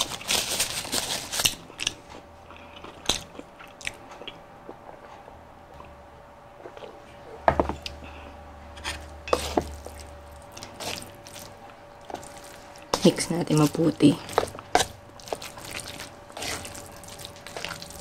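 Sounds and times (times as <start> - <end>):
person chewing: 1.4 - 5.9, 9.3 - 13.0, 14.2 - 18.0.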